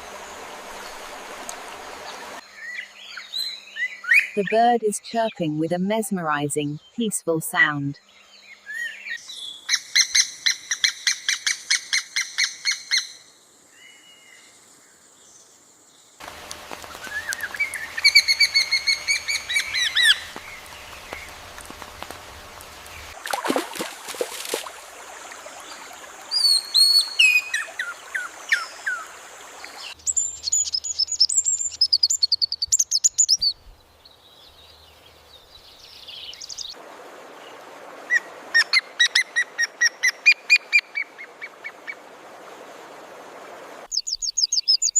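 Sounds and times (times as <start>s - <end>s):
songbirds chirping and trilling: 0.1s - 23.2s, 25.5s - 36.8s, 43.9s - 44.9s.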